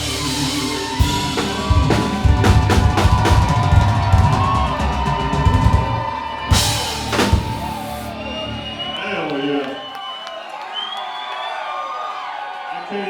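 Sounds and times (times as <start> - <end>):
live band music: 0.0 - 9.5
cymbal crash: 6.5 - 8.3.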